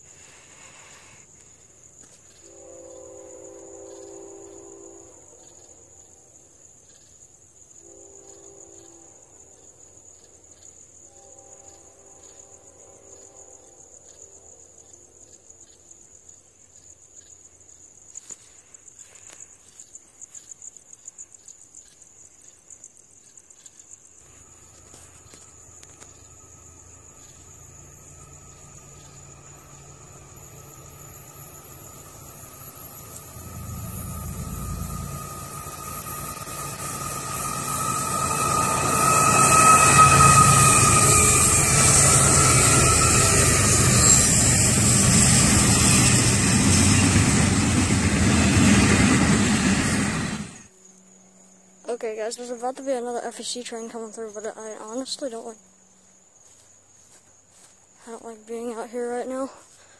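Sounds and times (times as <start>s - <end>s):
crickets chirping: 0.0s - 59.9s
diesel freight train passing: 2.5s - 5.4s, 24.2s - 50.7s.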